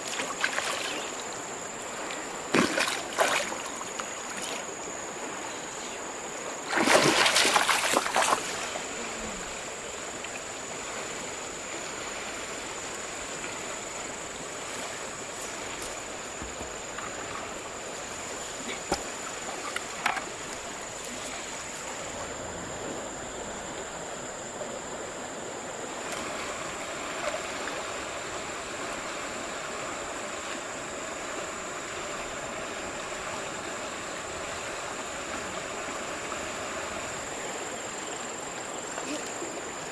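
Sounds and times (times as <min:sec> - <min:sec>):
river water running: 0:00.0 - 0:39.9
loud splash: 0:02.5 - 0:03.7, 0:06.7 - 0:08.9.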